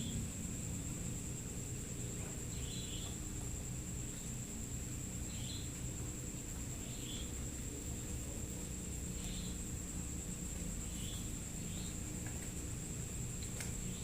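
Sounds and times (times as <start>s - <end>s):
insect high-pitched trill: 0.0s - 14.0s
low background rumble: 0.0s - 14.0s
insect short chirps: 2.4s - 3.2s, 5.2s - 5.8s, 10.8s - 12.0s.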